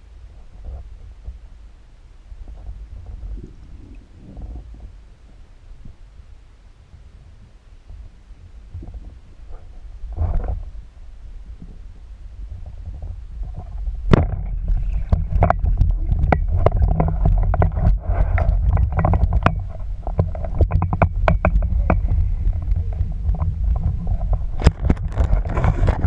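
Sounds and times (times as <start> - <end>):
underwater low rumble: 0.0 - 26.0
sharp clicks and knocks: 13.6 - 26.0.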